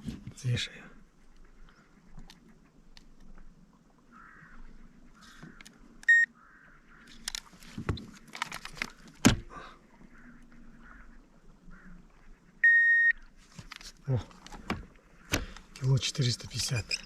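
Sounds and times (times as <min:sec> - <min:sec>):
digital scale beep: 0:06.1 - 0:06.3, 0:12.6 - 0:13.2
clicks and rattles from handling: 0:07.2 - 0:09.2.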